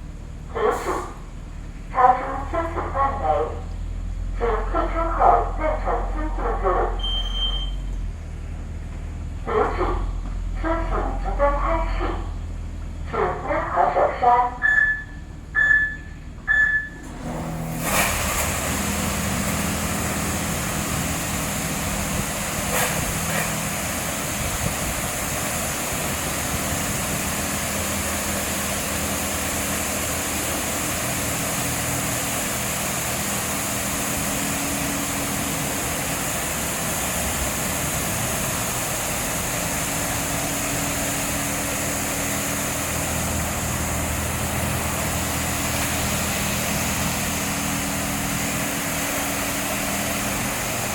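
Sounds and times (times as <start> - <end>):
short electronic beep: 7.0 - 7.9, 14.6 - 17.1
pump humming: 16.8 - 50.9
high-pressure water spray: 17.6 - 50.9.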